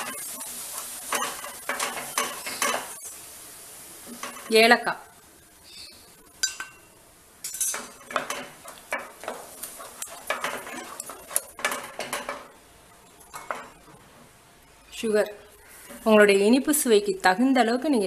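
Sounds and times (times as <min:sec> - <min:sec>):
metal spoon stirring in pan: 0:00.0 - 0:03.2, 0:04.0 - 0:04.6, 0:06.4 - 0:14.1.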